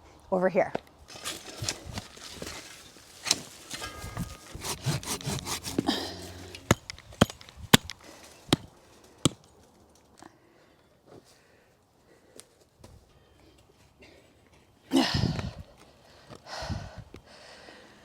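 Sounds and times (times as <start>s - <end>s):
scraping through soil and roots: 1.1s - 9.0s.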